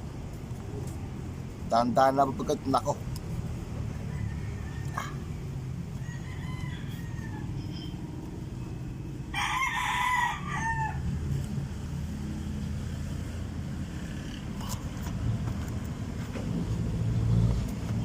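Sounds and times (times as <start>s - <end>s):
rooster crowing: 3.8s - 8.2s, 9.2s - 11.3s.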